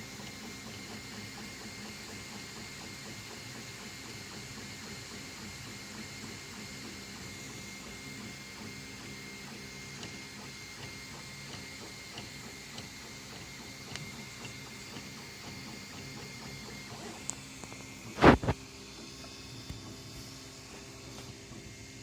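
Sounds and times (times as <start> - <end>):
fan whine: 12.2 - 22.0.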